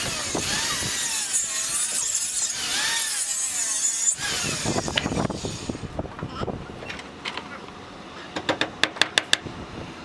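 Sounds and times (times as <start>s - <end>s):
power saw cutting wood: 0.0s - 5.9s.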